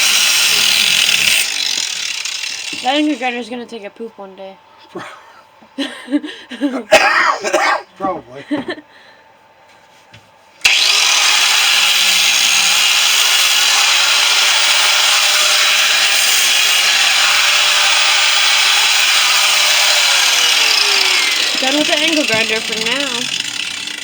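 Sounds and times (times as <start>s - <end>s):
angle grinder cutting steel: 0.0s - 3.4s, 10.6s - 24.0s.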